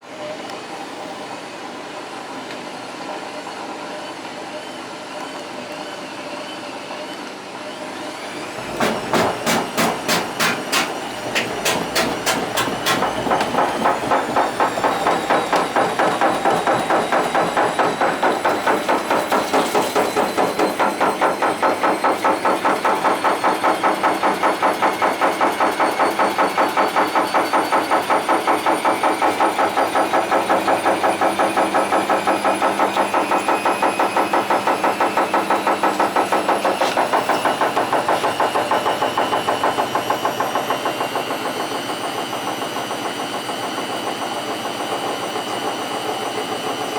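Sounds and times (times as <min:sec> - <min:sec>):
washing machine drum rattling: 0:08.8 - 0:45.0.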